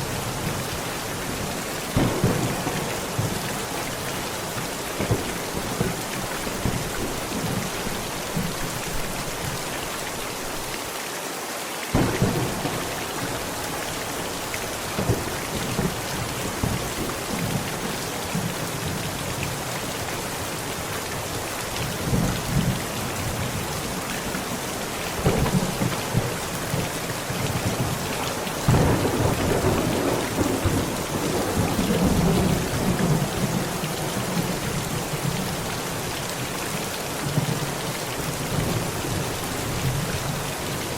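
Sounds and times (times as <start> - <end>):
heavy rain on a tent: 0.0 - 40.9
thunder cracks and rumble: 1.4 - 8.5, 11.9 - 13.7, 14.8 - 17.8, 25.1 - 35.0.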